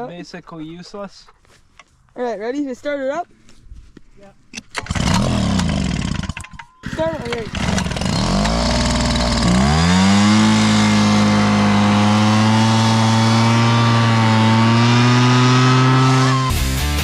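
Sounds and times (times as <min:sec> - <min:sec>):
outboard boat motor running: 0:06.8 - 0:14.5.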